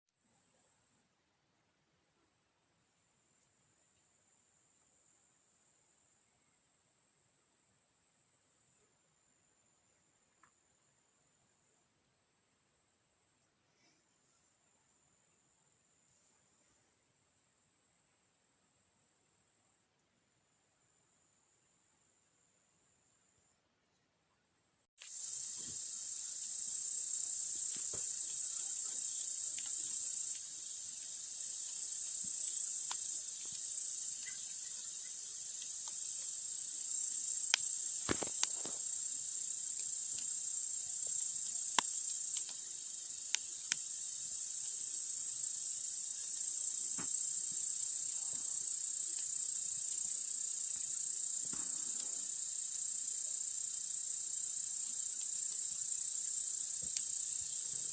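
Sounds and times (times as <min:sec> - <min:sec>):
crickets chirping: 0:03.0 - 0:23.6, 0:25.0 - 0:57.9
campfire crackling: 0:25.1 - 0:52.3, 0:54.6 - 0:57.9.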